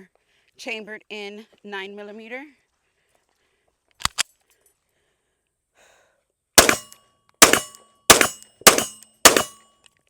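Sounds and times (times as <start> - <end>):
pistol clicks: 6.6 - 9.6
pistol shot: 6.6 - 9.6
metallic ring: 6.6 - 9.8.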